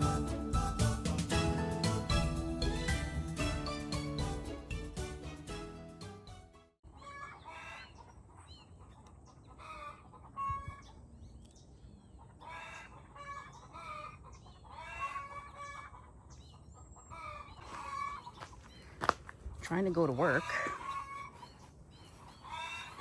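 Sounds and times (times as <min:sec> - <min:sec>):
music: 0:00.0 - 0:06.8
hens clucking: 0:06.9 - 0:11.1, 0:12.0 - 0:23.0.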